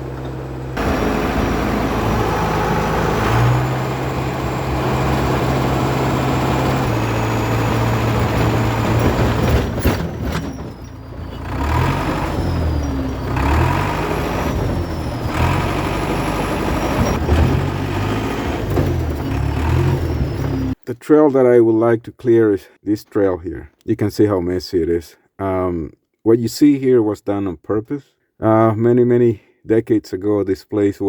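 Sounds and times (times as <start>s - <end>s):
bulldozer diesel engine running: 0.0s - 20.8s.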